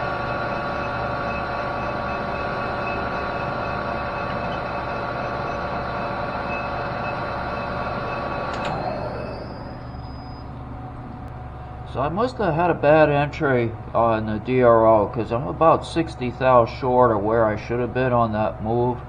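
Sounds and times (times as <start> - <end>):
metal lathe running: 0.0 - 11.2
lathe switch click: 8.5 - 8.9.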